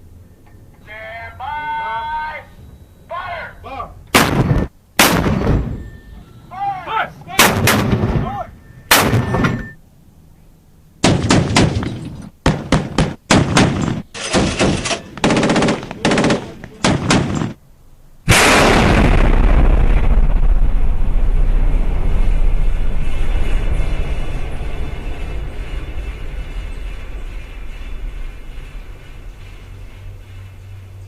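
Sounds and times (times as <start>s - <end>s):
gunshot: 4.1s - 5.8s, 7.4s - 8.3s, 8.9s - 9.6s, 11.0s - 11.9s, 12.5s - 17.6s, 18.3s - 20.4s
automatic gunfire bursts: 12.5s - 17.5s
loud rushing rumble: 15.4s - 31.0s.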